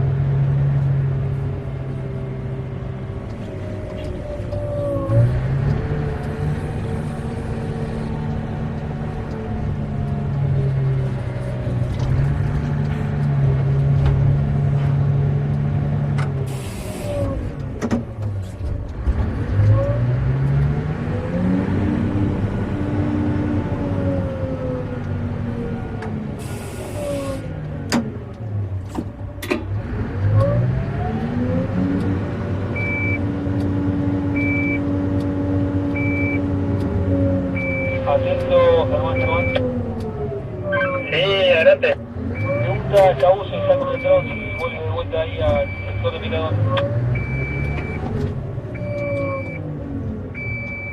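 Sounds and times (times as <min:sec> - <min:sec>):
diesel engine droning: 0:00.0 - 0:50.9
short high beeps: 0:40.7 - 0:41.2, 0:43.9 - 0:44.9.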